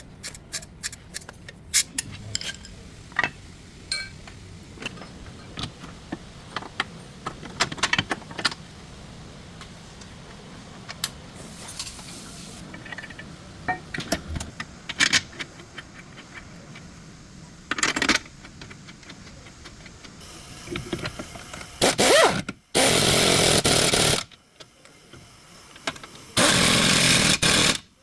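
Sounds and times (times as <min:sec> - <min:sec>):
power tool bursts: 0:21.7 - 0:24.3, 0:26.4 - 0:27.9.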